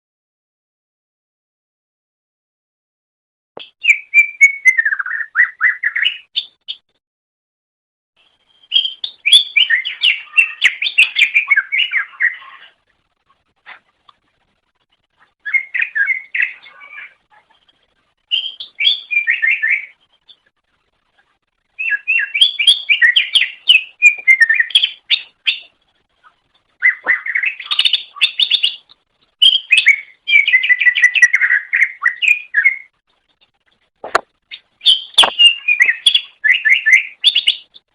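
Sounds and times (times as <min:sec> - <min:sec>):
bird chattering and whistling: 0:08.6 - 0:12.8, 0:15.4 - 0:17.7, 0:18.3 - 0:20.4, 0:21.8 - 0:25.7, 0:26.8 - 0:32.9, 0:34.5 - 0:37.8.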